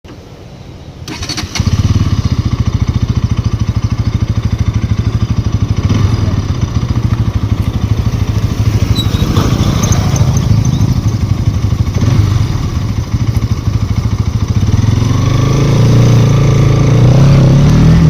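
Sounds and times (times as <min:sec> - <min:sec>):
motorcycle engine running: 0:01.4 - 0:18.0.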